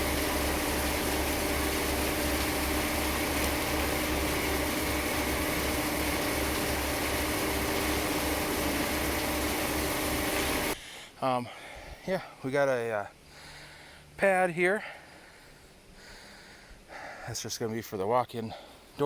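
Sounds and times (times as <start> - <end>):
machine engine running: 0.0 - 10.8.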